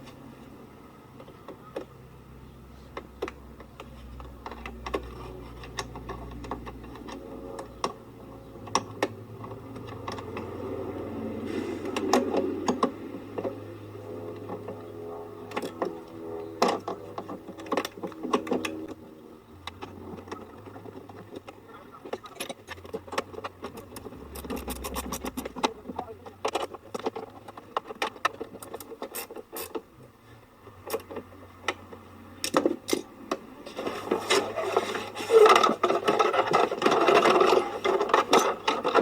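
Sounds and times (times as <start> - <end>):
low steady hum: 0.0 - 29.0
clicks and knocks of parts handled: 2.9 - 8.0, 19.6 - 29.9.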